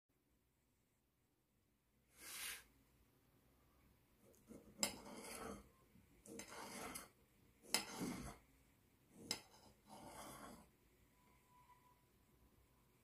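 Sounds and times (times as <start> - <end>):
dishes scraping: 4.4 - 8.5, 9.1 - 10.8.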